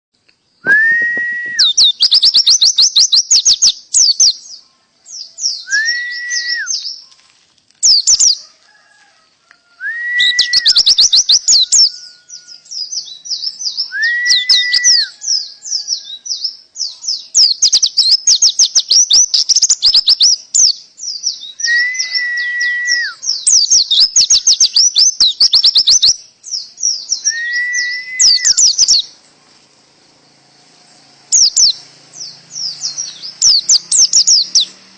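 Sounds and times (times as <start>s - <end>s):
bird singing rapid high trills: 0.4s - 7.2s, 7.8s - 8.4s, 9.7s - 34.9s
clear whistled bird note: 0.6s - 2.0s.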